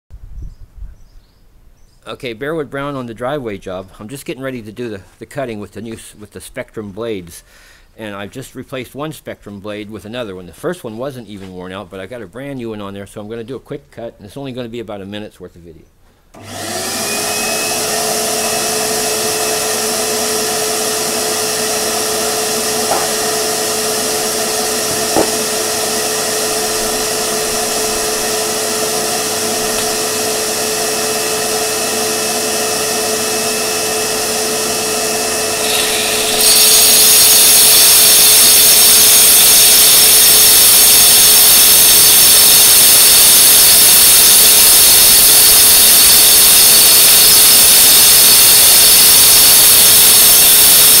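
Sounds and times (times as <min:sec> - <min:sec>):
power saw whining: 0:16.3 - 0:51.0
dust vacuum running: 0:16.4 - 0:51.0
saw blade cutting concrete: 0:16.4 - 0:51.0.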